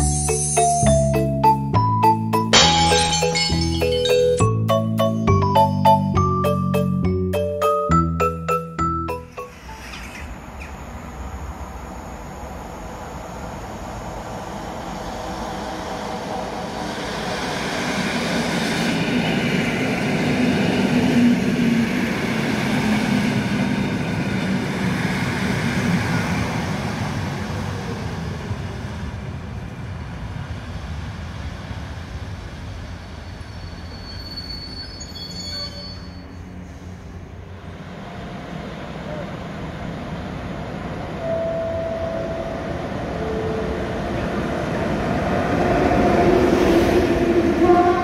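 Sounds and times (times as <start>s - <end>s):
electric train passing: 0.0s - 48.0s
high squeal: 9.3s - 12.5s, 33.2s - 37.2s.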